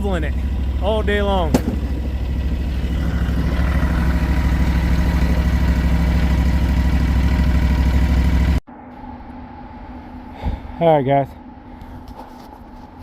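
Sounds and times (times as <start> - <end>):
snow plow engine running: 0.0 - 8.6.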